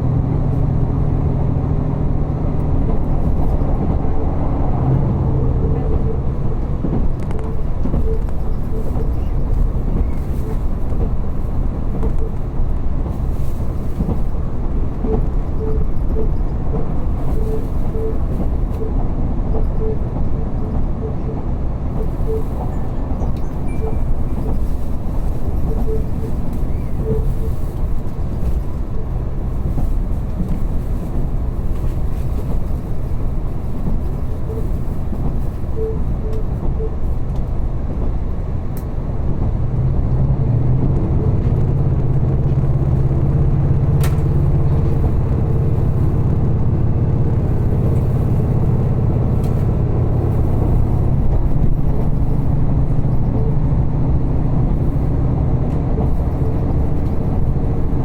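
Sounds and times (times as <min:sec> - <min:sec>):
low engine drone: 0:00.0 - 0:13.8, 0:35.7 - 0:58.0
train running on rails: 0:00.0 - 0:58.0.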